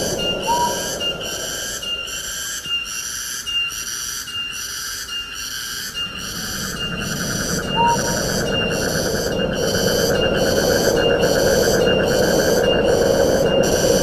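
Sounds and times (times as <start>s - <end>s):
rising whistled bird note: 0.0s - 2.9s, 6.0s - 8.8s
insect chorus pulsing: 0.0s - 14.0s.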